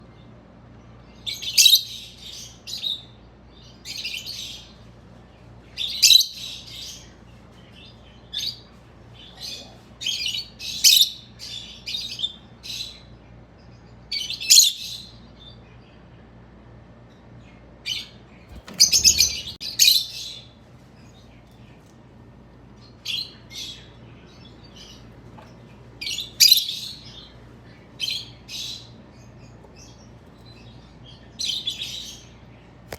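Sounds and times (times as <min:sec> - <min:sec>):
parakeet chirping: 0:18.5 - 0:20.1.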